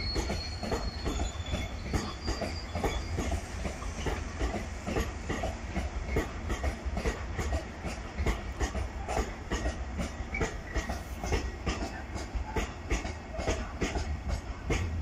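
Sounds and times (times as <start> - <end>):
wheel squeals: 0.0 - 4.2
train rumble: 0.0 - 15.0
train wheels clacking: 0.0 - 15.0.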